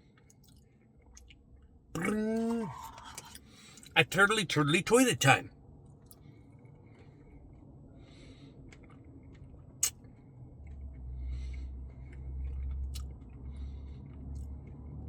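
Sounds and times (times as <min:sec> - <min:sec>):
person chewing: 0:02.0 - 0:04.0, 0:08.6 - 0:13.7
sharp mouth clicks: 0:12.5 - 0:13.2.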